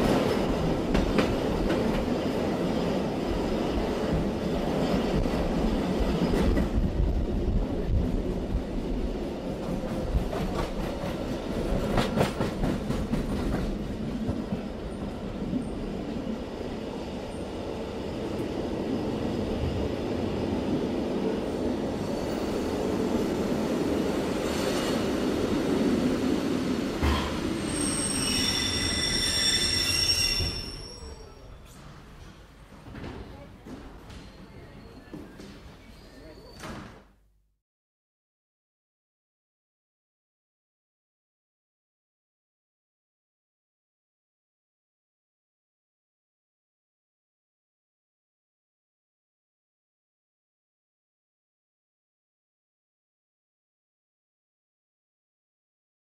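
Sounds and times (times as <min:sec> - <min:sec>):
train wheels rumbling on rails: 0:00.0 - 0:30.9
high-pitched wheel squeal: 0:27.6 - 0:31.6.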